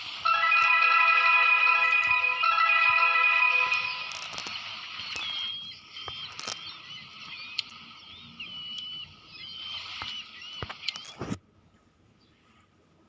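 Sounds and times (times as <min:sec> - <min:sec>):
birds chirping and peeping: 0:03.4 - 0:11.2.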